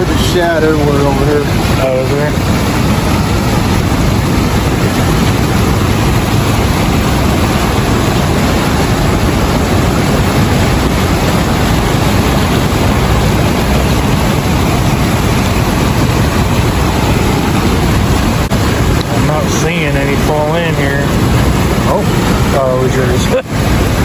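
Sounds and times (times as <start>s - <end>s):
water rushing through spillway: 0.0s - 24.0s.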